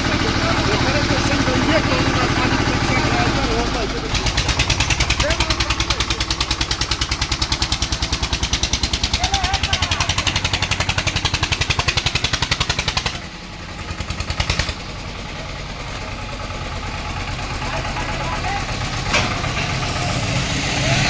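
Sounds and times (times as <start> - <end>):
diesel tractor engine labouring: 0.0 - 21.0.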